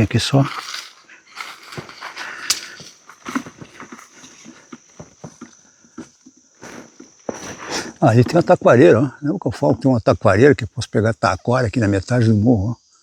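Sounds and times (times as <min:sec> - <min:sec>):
footsteps on grassy stony trail: 0:00.0 - 0:08.9
high-pitched insect drone: 0:00.0 - 0:10.1.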